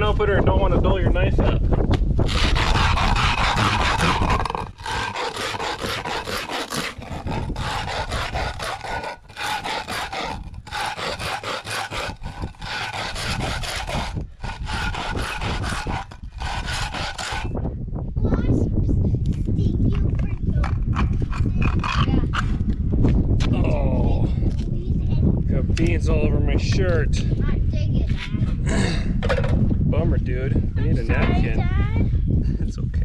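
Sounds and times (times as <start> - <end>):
can rasping against rough surface: 2.2 - 17.6, 20.6 - 22.5.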